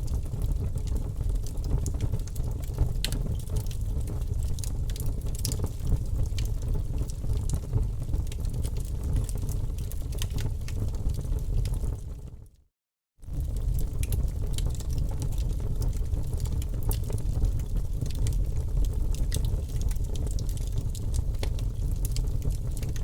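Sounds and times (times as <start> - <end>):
wood fire crackling: 0.0 - 12.4, 13.2 - 23.0
low rush of flames: 13.2 - 20.2.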